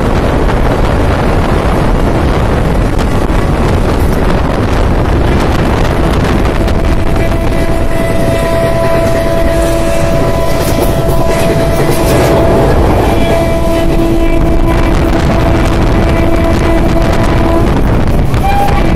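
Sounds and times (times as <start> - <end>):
train wheels rumbling on track: 0.0 - 18.9
wind on microphone: 0.0 - 18.9
steady whining tones: 5.5 - 18.9.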